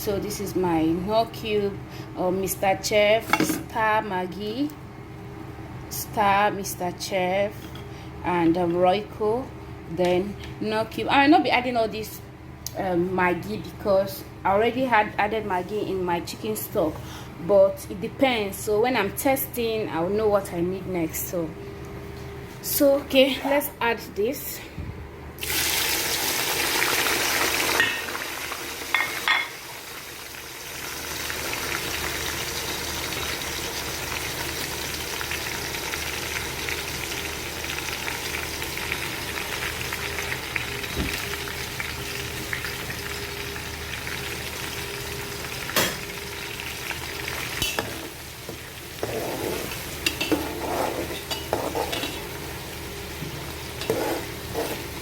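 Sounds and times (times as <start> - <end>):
vegetables frying hiss: 25.4 - 29.0, 29.6 - 55.0
oil sizzling in a pot: 25.4 - 55.0
spoon stirring in a pot: 49.0 - 52.2, 53.8 - 54.9.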